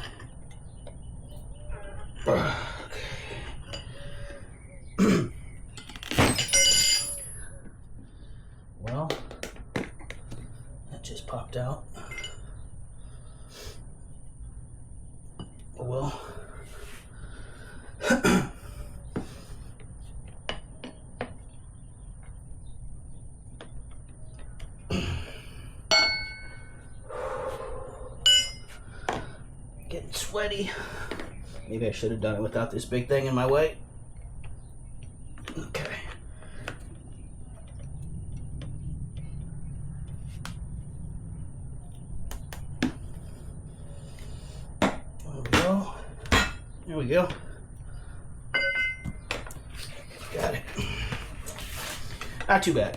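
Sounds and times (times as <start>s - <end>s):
tire irons clinking on wheel rim: 5.7s - 7.5s, 48.5s - 52.8s
person grunting: 24.9s - 25.3s
low rumble: 37.0s - 44.6s.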